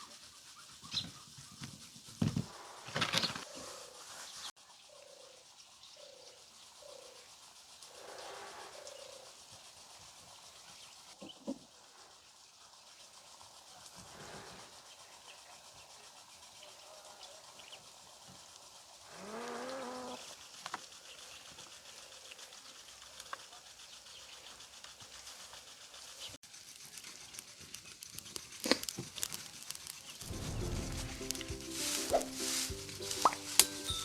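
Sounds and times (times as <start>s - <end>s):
faint outdoor background: 0.0s - 34.0s
farm animal call: 19.1s - 20.3s
music: 30.2s - 34.0s.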